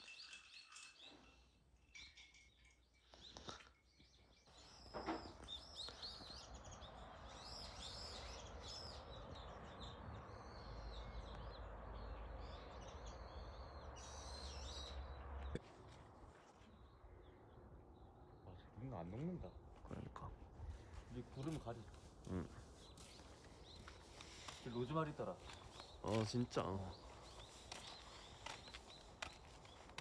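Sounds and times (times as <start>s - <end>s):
small birds chirping: 0.0s - 15.6s, 16.6s - 30.0s.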